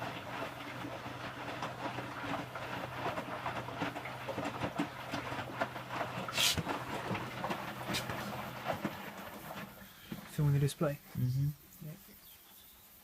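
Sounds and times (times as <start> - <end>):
washing machine drum humming: 0.0 - 10.6
short hiss: 6.3 - 6.6.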